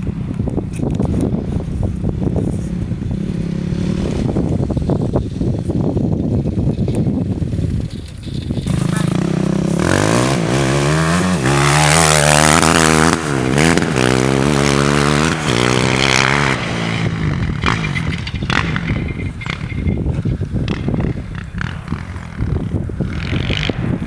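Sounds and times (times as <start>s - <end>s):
atv engine revving: 0.0s - 24.0s
rough crackling noise: 0.7s - 14.3s.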